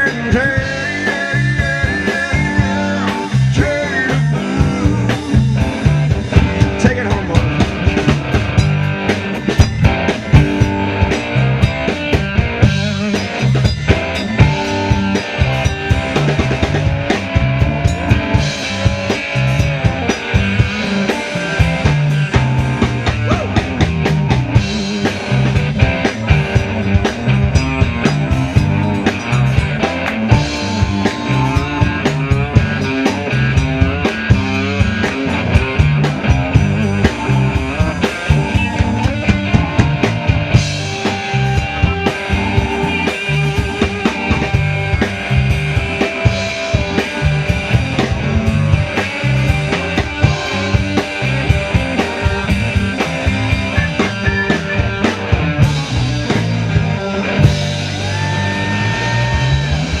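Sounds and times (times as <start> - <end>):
bass guitar: 0.0 - 60.0
drum kit steady beat: 0.0 - 60.0
electric guitar: 0.0 - 60.0.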